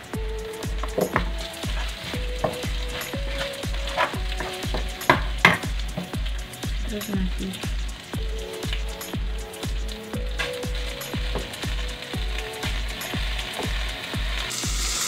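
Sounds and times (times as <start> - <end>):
aromatics sizzling in oil: 0.0 - 15.0
background music with steady beat: 0.0 - 15.0
wooden spatula scraping a pan: 0.9 - 6.1.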